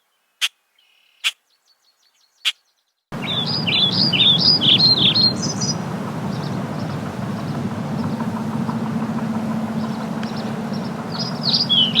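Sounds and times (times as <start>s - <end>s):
faint high bird chirps: 0.0s - 12.0s
bird calling loudly: 2.3s - 12.0s
hum: 3.2s - 12.0s
low engine-like rumble: 3.2s - 12.0s.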